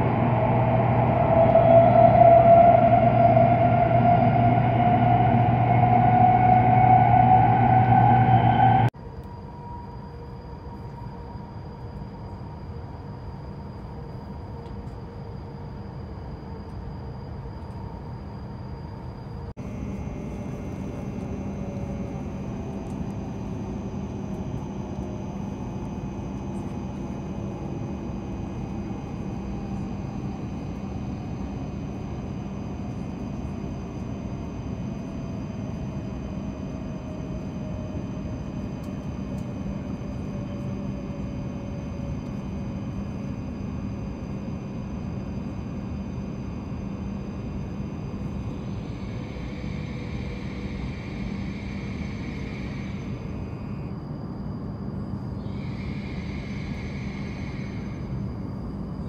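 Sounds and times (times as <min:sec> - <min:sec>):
train cabin rumble and hum: 0:00.0 - 0:46.7
train braking whine: 0:00.0 - 0:59.0.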